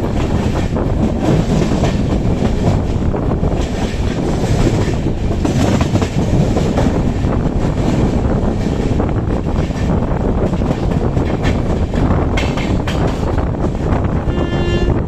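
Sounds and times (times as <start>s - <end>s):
train rumbling: 0.0s - 15.0s
wheels clattering over rail joints: 7.7s - 14.0s.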